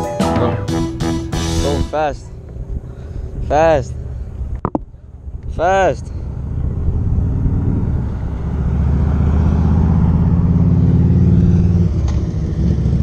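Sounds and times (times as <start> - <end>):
wind rumble: 1.4 - 13.0
electric scooter hum: 2.3 - 5.5, 6.2 - 13.0.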